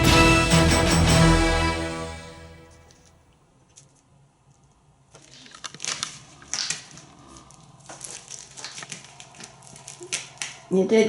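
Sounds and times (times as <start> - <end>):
parrot crunching pumpkin: 3.6 - 10.6.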